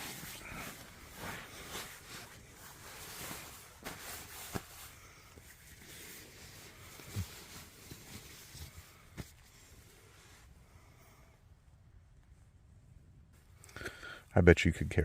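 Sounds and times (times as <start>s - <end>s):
fabric rustling in a tent: 0.0s - 11.1s.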